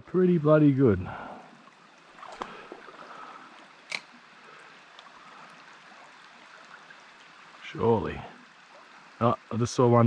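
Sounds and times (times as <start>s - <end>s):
creek water running over rocks: 0.1s - 10.0s
sharp click: 3.9s - 4.1s.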